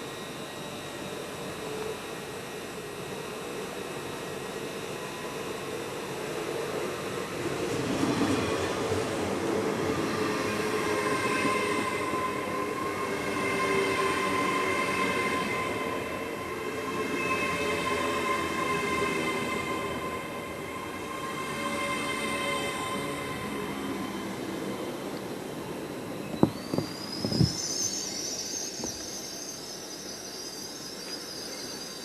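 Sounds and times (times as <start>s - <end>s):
high train whine: 0.0s - 32.0s
train rumble: 17.8s - 27.8s.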